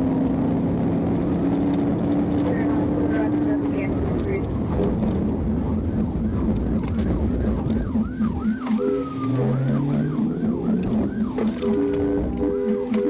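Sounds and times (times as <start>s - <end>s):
car engine and road noise: 0.0s - 13.0s
police siren yelping: 5.3s - 13.0s.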